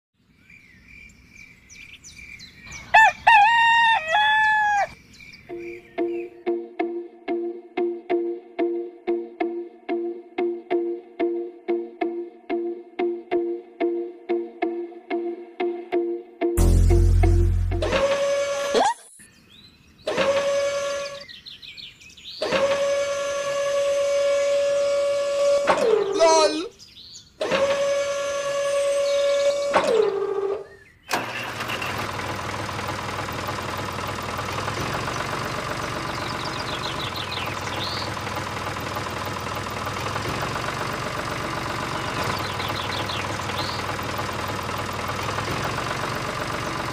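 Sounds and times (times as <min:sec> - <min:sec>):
small birds chirping: 0:00.2 - 0:06.4, 0:19.1 - 0:20.2, 0:20.8 - 0:22.6, 0:25.9 - 0:27.4, 0:30.6 - 0:31.2, 0:33.1 - 0:46.9
rooster crowing: 0:02.8 - 0:05.0
music: 0:05.5 - 0:18.8
small electric motor whining: 0:20.1 - 0:21.2, 0:22.4 - 0:26.4, 0:27.4 - 0:30.6.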